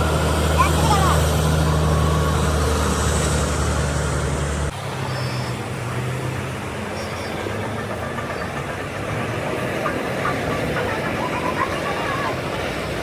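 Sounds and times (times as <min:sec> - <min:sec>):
heavy vehicle engine humming: 0:00.0 - 0:13.0
road noise: 0:00.0 - 0:13.0.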